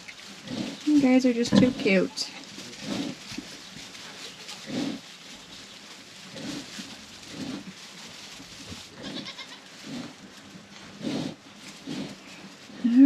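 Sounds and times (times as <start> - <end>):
sow grunting: 0.4 - 3.2.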